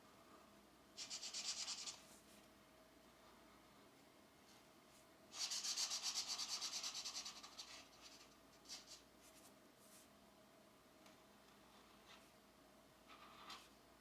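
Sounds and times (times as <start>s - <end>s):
pencil scratching on paper: 1.0s - 2.2s, 5.3s - 9.0s.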